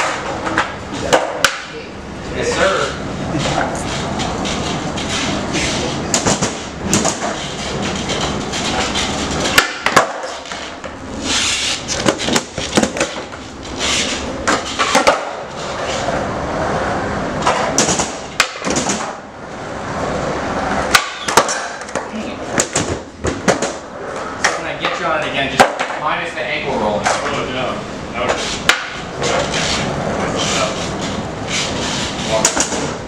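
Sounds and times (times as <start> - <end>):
skateboard wheels rolling: 0.0 - 1.3, 2.8 - 26.0
skateboard clacking on floor: 0.0 - 1.7, 6.1 - 11.0, 12.0 - 13.4, 14.4 - 16.2, 17.4 - 19.2, 20.9 - 25.0.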